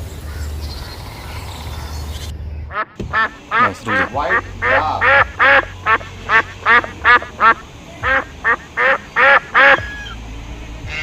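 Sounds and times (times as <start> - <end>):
duck quacking: 2.7 - 10.2.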